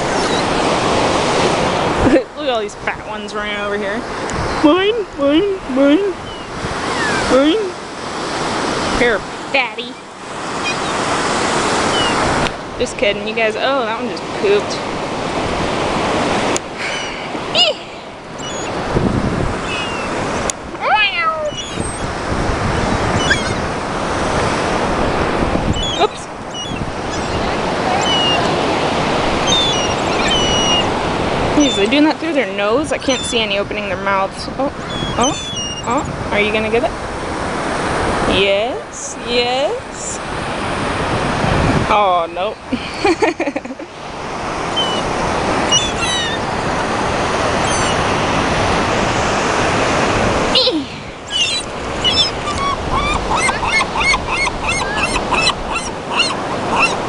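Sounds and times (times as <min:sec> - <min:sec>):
faint seagull calls: 0:00.0 - 0:00.6, 0:05.9 - 0:07.7, 0:09.8 - 0:12.3, 0:16.8 - 0:18.9, 0:19.6 - 0:22.2, 0:23.1 - 0:23.7, 0:25.7 - 0:28.7, 0:29.3 - 0:32.2, 0:34.7 - 0:36.2, 0:44.6 - 0:46.8, 0:47.4 - 0:48.2, 0:50.5 - 0:57.0
surf washing in: 0:00.0 - 0:57.0
wind buffeting microphone: 0:00.0 - 0:57.0.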